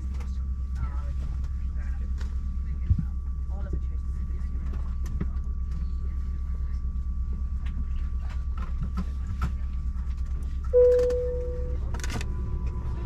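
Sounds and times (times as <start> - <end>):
airliner cabin hum: 0.0 - 13.0
thin high tone: 10.8 - 11.8.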